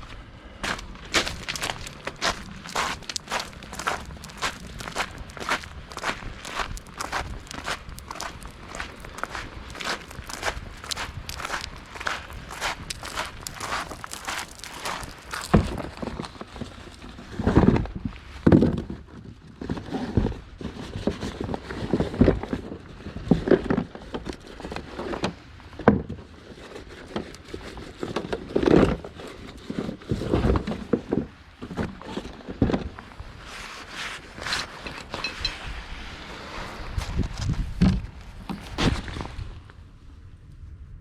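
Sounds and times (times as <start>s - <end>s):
crunching footsteps: 0.0s - 17.1s.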